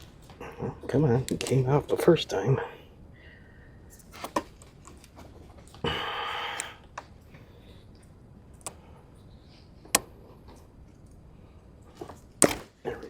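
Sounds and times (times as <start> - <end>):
tools clicking: 12.4 - 12.7.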